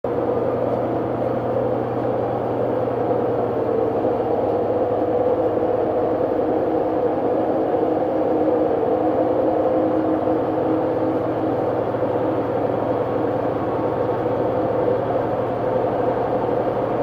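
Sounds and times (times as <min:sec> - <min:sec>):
washing machine humming and whirring: 0:00.1 - 0:17.0.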